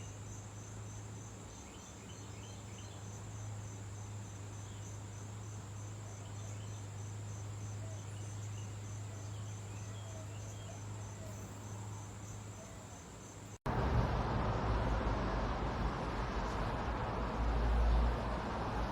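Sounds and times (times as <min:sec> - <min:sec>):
insects trilling: 0:00.0 - 0:13.6.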